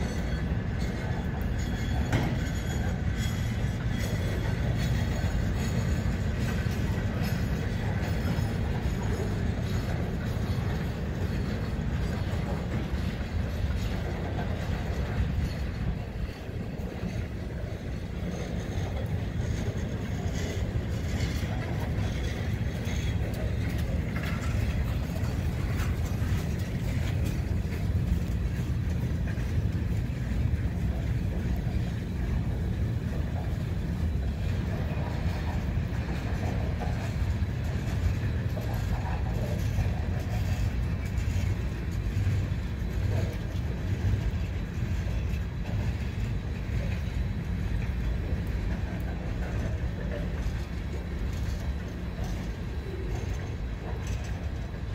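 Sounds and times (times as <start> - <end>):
steel wheels rumbling on rail: 0.0 - 54.9.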